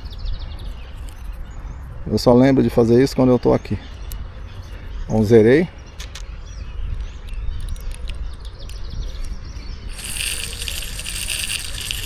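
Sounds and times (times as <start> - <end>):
fishing reel ratcheting clatter: 9.9 - 12.0.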